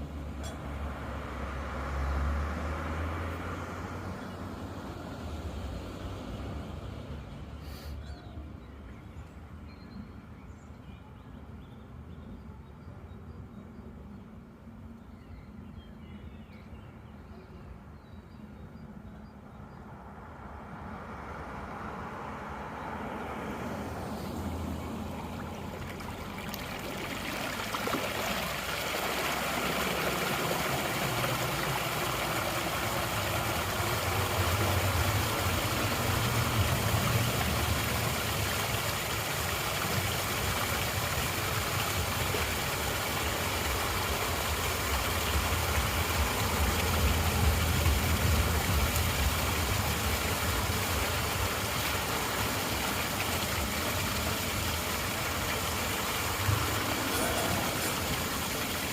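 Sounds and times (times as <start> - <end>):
water rushing into storm drain: 0.0 - 7.6, 20.9 - 58.9
engine idling: 28.2 - 58.9.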